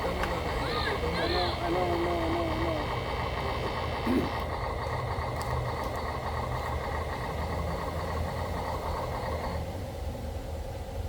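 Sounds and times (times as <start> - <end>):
high motor whine: 0.0 - 11.0.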